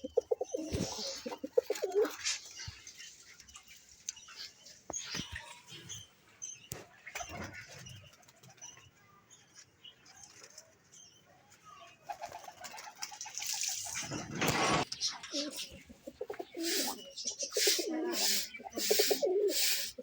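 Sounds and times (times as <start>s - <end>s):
pigeons cooing: 0.0s - 2.4s, 12.1s - 20.0s
wing flaps: 12.2s - 14.9s
budgerigars chirping: 15.0s - 20.0s.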